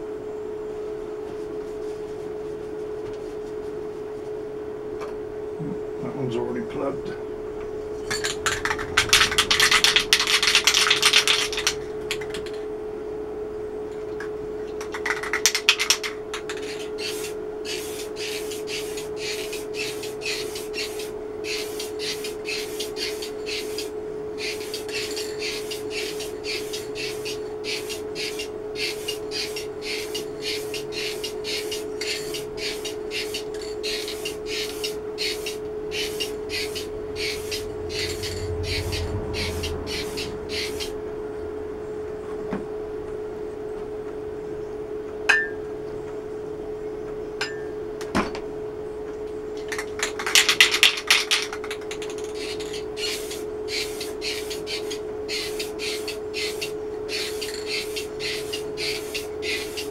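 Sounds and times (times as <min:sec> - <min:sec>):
steady hum: 0:00.0 - 0:59.9
short noisy strokes: 0:07.9 - 0:11.9, 0:17.0 - 0:41.7
aerosol can spraying: 0:16.6 - 0:40.9, 0:50.3 - 0:59.9.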